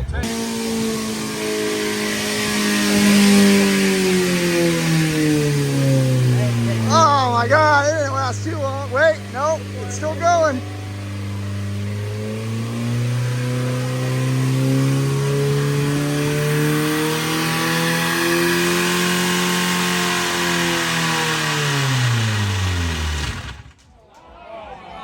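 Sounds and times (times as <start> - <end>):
car engine at high revs: 0.0 - 23.8.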